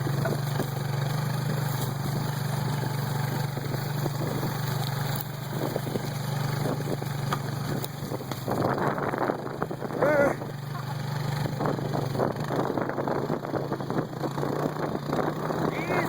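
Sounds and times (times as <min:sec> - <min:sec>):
dirt bike engine running: 0:00.0 - 0:16.0
faint crackles: 0:00.1 - 0:08.7.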